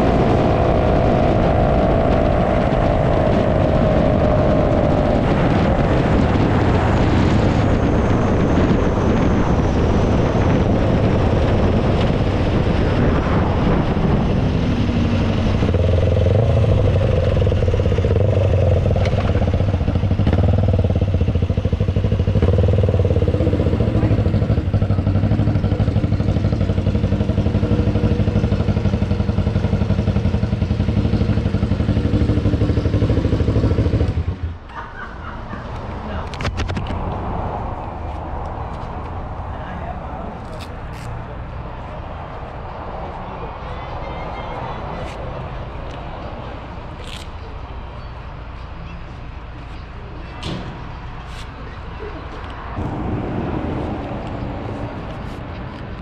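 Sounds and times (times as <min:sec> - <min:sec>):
wind rush: 0:00.0 - 0:34.6, 0:52.6 - 0:56.0
motorcycle engine: 0:00.0 - 0:34.7, 0:52.7 - 0:56.0.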